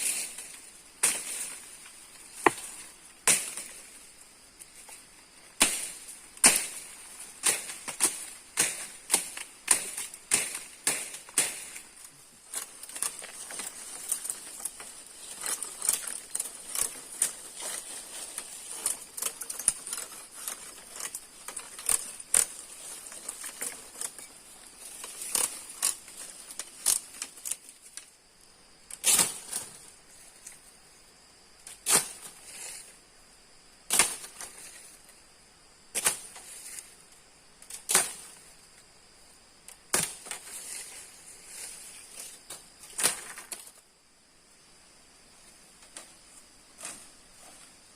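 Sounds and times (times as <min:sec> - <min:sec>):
blade chopping wood: 0:05.6 - 0:11.7.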